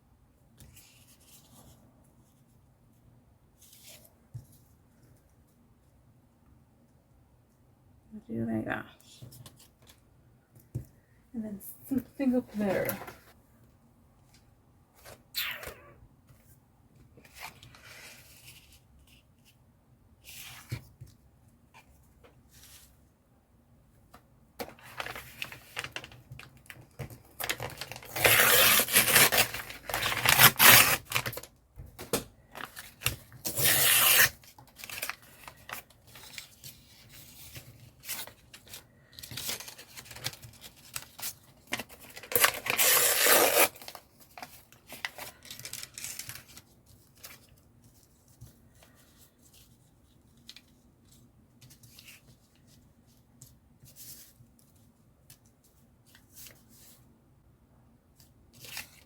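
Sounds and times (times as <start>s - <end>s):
paper rustling or tearing: 27.4s - 31.5s, 32.7s - 47.4s.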